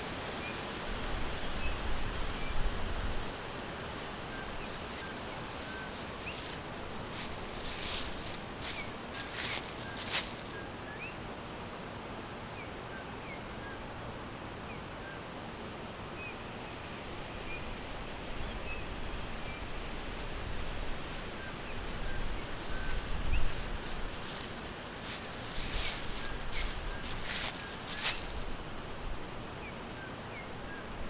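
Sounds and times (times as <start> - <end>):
steady rustling hiss: 0.0 - 12.3, 14.0 - 30.0
small birds chirping: 3.2 - 11.2, 21.0 - 28.9
sharp rustles or snaps: 23.6 - 28.6.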